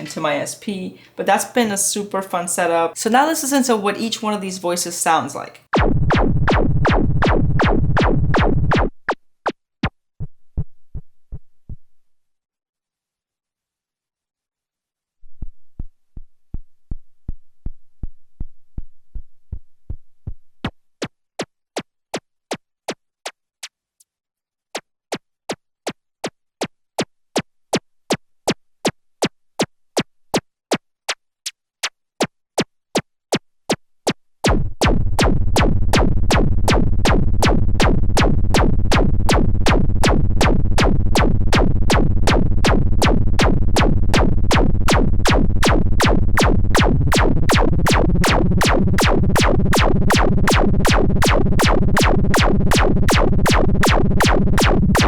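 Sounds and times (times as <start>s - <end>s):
drum synthesizer percussive hits: 5.7s - 9.1s, 34.4s - 55.0s
dense noisy synth layer: 46.8s - 55.0s.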